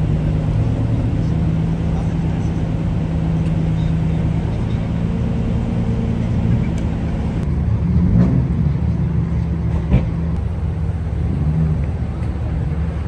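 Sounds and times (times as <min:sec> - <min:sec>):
car engine idling: 0:00.0 - 0:07.5, 0:10.4 - 0:13.0.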